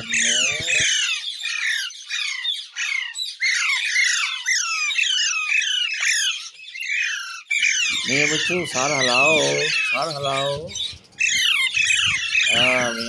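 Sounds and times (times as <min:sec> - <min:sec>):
parakeet squawking: 0:00.0 - 0:01.4, 0:06.9 - 0:13.0.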